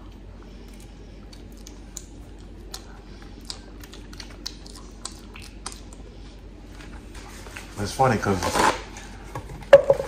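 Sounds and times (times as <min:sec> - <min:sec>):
man chewing and lip-smacking: 0:00.0 - 0:07.1.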